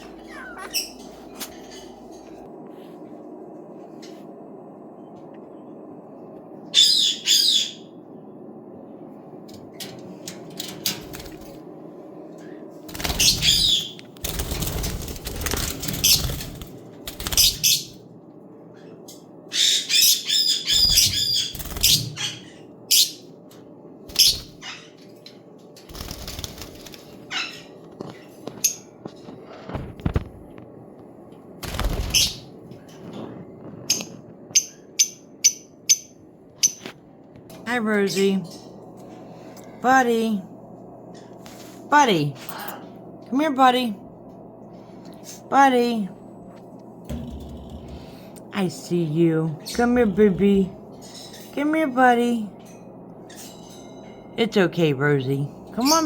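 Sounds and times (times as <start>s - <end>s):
parrots squawking and chirping: 0.0s - 1.9s, 6.7s - 7.9s, 13.0s - 14.0s, 19.5s - 23.2s, 24.1s - 25.1s, 27.1s - 28.3s, 32.0s - 32.5s
steady low hum: 0.0s - 56.0s.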